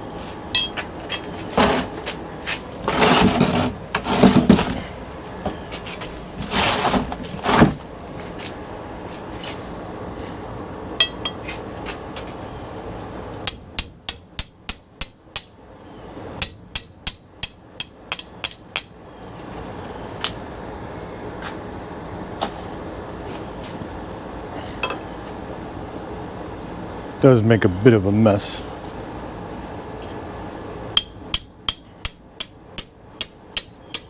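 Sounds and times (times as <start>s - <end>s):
hammer striking metal: 0.6s - 0.8s, 11.0s - 11.4s, 16.4s - 18.9s, 31.0s - 34.0s.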